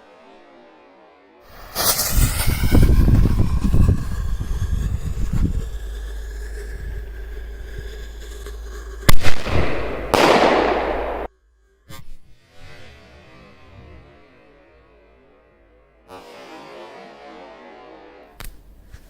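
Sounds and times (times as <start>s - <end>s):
firework sharp bang: 1.5s - 6.0s, 9.1s - 11.3s
fireworks crackling rumble: 1.5s - 11.3s.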